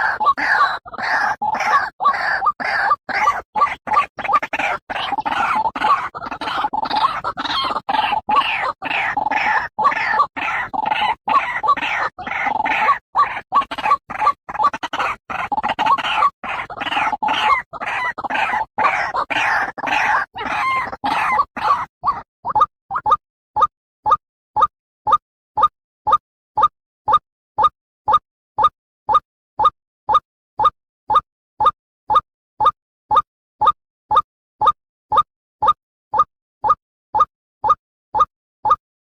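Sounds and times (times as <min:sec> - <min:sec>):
bird calling harsh repeated notes: 0:00.0 - 0:28.2.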